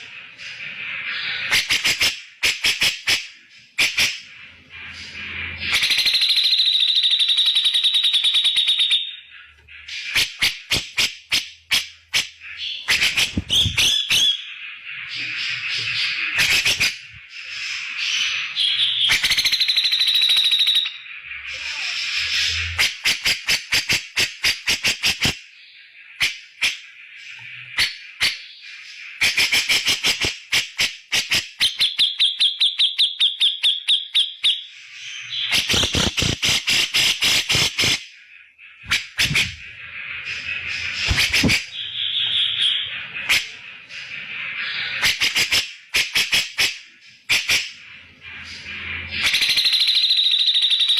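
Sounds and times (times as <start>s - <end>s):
bulbul giving harsh calls: 3.8s - 25.4s, 35.3s - 38.0s, 38.7s - 39.8s, 40.5s - 43.5s
sharp clicking bird notes: 35.5s - 38.0s, 41.0s - 41.7s.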